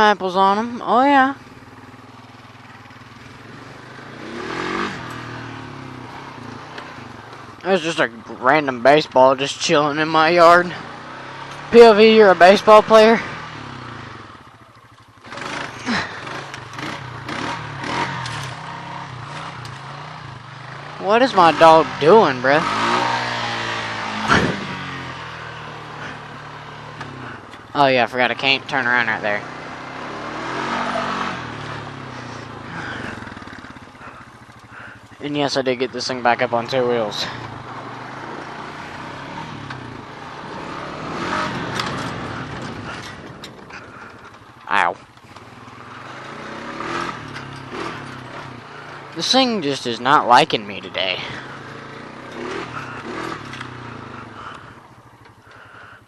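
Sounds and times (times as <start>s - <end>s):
lawn mower engine running: 0.0s - 56.0s
rattling bursts: 20.8s - 54.6s
sharp clicks: 53.4s - 53.8s.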